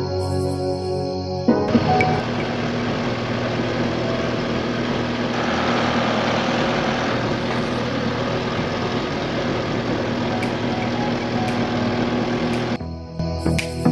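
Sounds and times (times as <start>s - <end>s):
engine idling: 1.7s - 12.8s.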